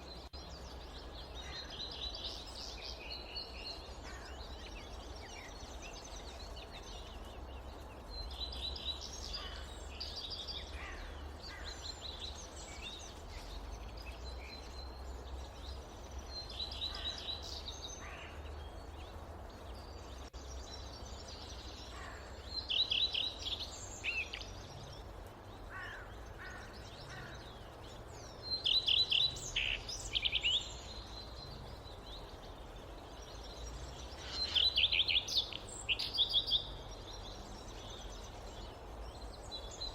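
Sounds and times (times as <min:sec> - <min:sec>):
forest birds chirping: 0:00.0 - 0:39.9.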